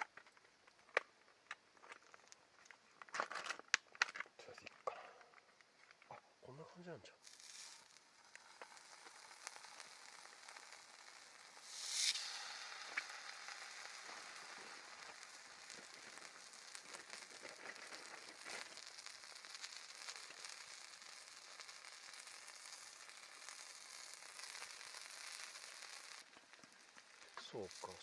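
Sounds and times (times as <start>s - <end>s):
fire crackles: 0.0s - 28.0s
food sizzling in frying pan: 7.2s - 28.0s
sharp pop: 11.5s - 16.2s.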